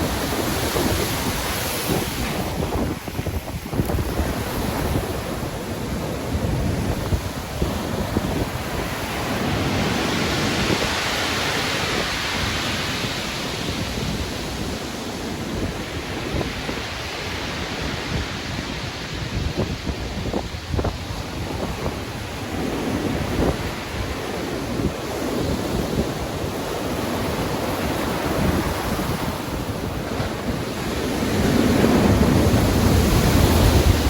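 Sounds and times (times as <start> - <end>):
wave breaking: 0.0 - 13.7
gusty wind rumble: 0.0 - 34.0
surf washing: 0.0 - 34.0.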